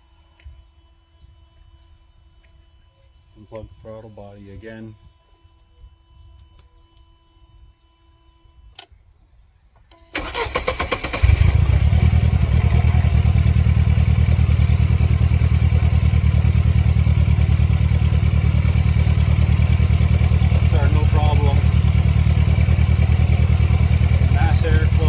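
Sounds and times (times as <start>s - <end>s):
click: 6.3s - 7.1s, 8.7s - 10.0s
car engine starting and idling: 10.1s - 25.0s.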